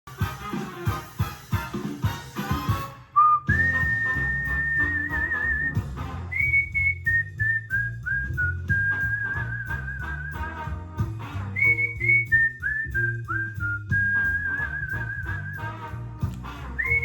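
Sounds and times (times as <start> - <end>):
person whistling a tune: 3.2 - 10.7, 11.6 - 15.8, 16.8 - 17.0
backing track with bass line: 3.5 - 17.0.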